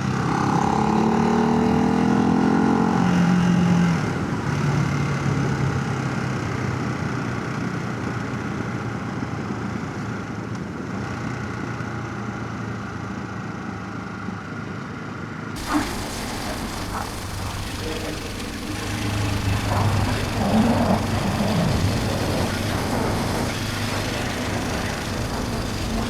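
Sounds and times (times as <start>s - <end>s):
wind and road noise: 13.9s - 26.0s
motorcycle engine running: 15.6s - 26.0s.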